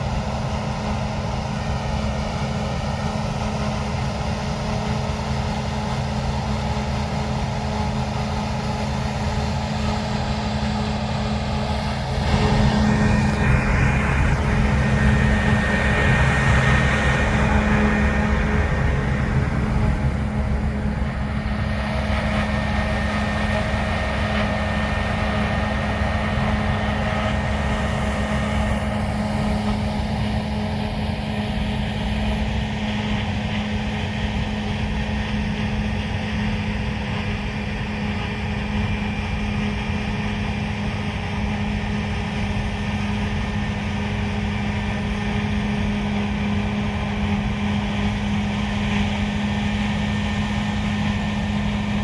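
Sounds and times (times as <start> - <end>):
harvest machinery engine hum: 0.0 - 52.0
high whining tones: 10.7 - 23.9.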